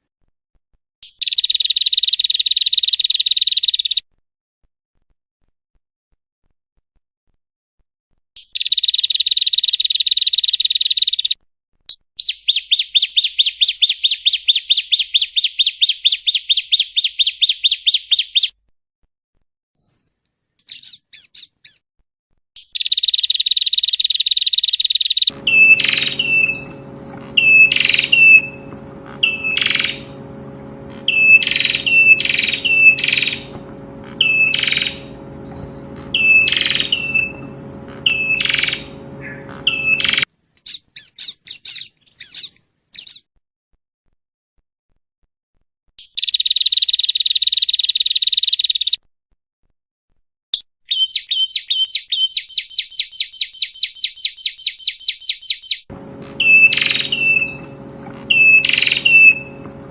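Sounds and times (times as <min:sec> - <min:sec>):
bird buzzy trill: 0:25.1 - 0:40.3, 0:54.2 - 0:59.9
steady low hum: 0:25.3 - 0:40.3, 0:55.9 - 0:59.9.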